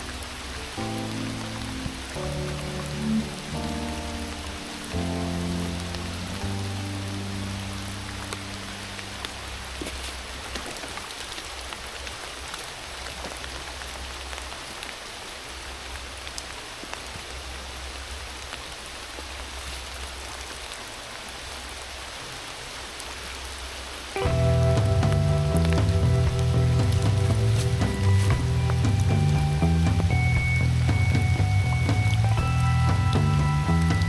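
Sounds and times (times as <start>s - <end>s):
heavy rain hissing: 0.0s - 34.0s
rain drop ticks: 24.1s - 34.0s
low steady rumble: 24.2s - 34.0s.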